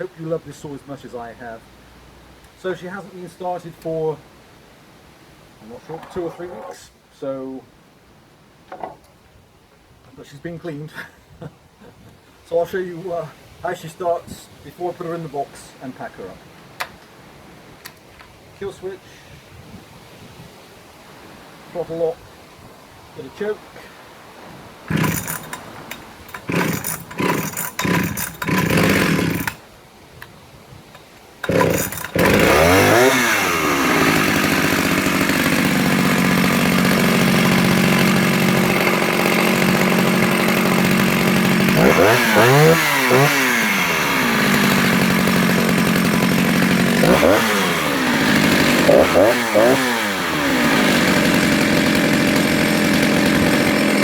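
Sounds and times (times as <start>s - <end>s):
chainsaw engine revving: 5.8s - 6.8s, 24.9s - 29.6s, 31.4s - 54.0s
chainsaw starter cord pulls: 5.8s - 6.8s, 24.9s - 29.6s, 31.4s - 54.0s.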